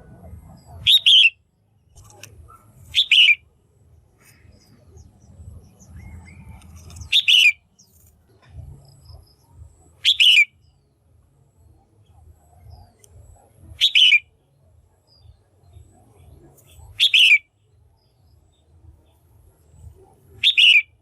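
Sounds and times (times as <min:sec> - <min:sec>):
bird calling double note: 0:10.0 - 0:10.5, 0:13.8 - 0:14.2.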